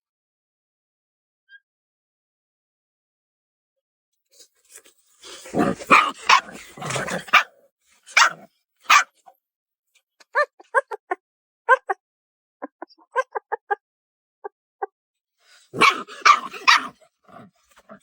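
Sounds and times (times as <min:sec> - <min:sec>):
puppy yapping: 0:05.6 - 0:07.5, 0:08.1 - 0:09.1, 0:15.7 - 0:17.0.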